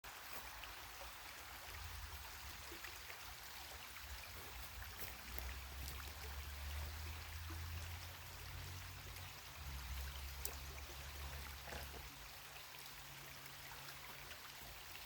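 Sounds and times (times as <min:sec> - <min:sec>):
creek water rushing: 0:00.0 - 0:15.0
small ticks: 0:10.0 - 0:12.1.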